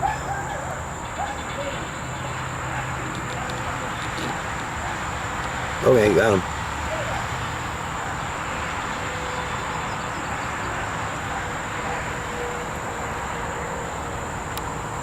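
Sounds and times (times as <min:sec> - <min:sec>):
low rushing background noise: 0:00.0 - 0:15.0.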